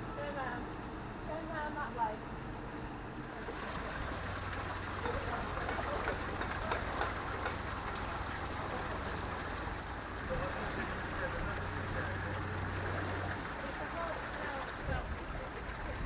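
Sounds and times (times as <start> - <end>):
boat engine running: 0.0 - 16.0
water rushing and splashing: 3.4 - 16.0.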